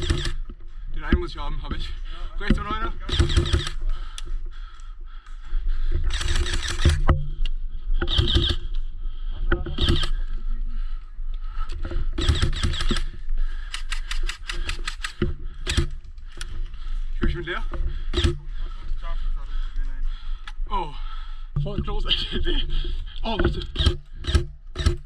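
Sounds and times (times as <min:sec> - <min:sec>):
airsoft rifle firing bursts: 0:00.0 - 0:00.5, 0:02.7 - 0:03.8, 0:06.1 - 0:07.1, 0:08.1 - 0:08.7, 0:09.6 - 0:10.2, 0:12.2 - 0:13.2, 0:13.8 - 0:16.0, 0:23.6 - 0:25.0.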